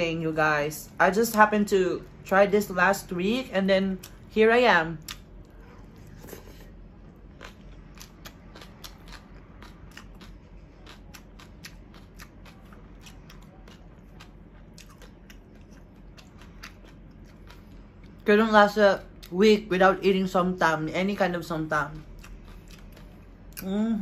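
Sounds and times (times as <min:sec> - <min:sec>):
crisp crunchy chewing: 0:05.0 - 0:18.2.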